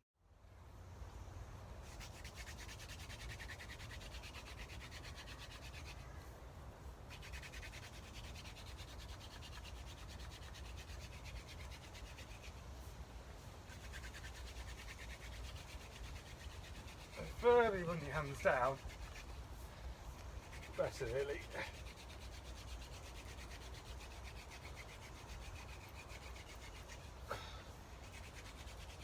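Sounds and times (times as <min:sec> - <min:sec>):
wooden spindle grinding in board: 0:13.7 - 0:19.4, 0:20.1 - 0:27.2, 0:28.0 - 0:29.0.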